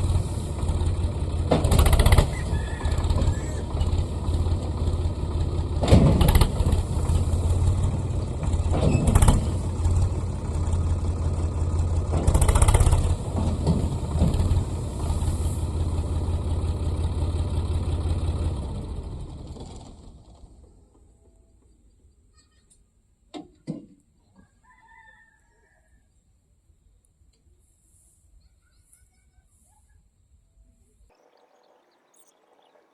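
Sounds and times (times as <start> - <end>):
tractor diesel engine running: 0.0 - 21.6.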